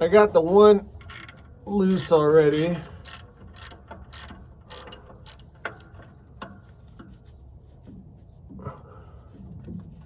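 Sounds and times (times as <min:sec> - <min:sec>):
ratchet wrench clicking: 0:01.0 - 0:06.5.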